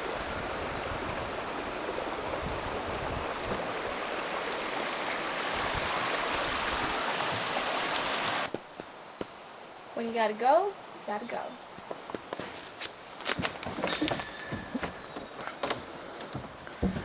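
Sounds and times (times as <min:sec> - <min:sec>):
river water rushing: 0:00.0 - 0:08.5.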